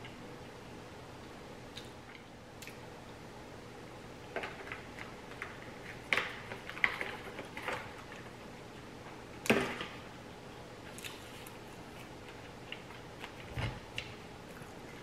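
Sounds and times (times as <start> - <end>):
person chewing: 10.1 - 13.5.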